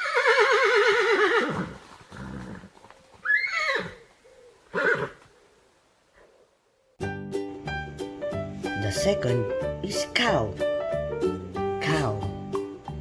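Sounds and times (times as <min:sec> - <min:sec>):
horse whinnying: 0:00.0 - 0:04.0, 0:04.7 - 0:05.2.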